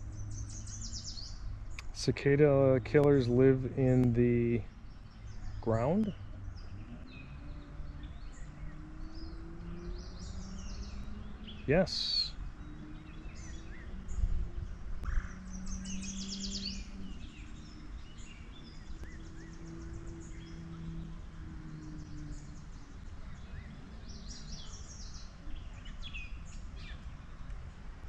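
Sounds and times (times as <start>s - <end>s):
faint low hum: 0.0s - 28.0s
songbirds calling: 0.0s - 28.0s
high bird trills: 4.5s - 25.4s.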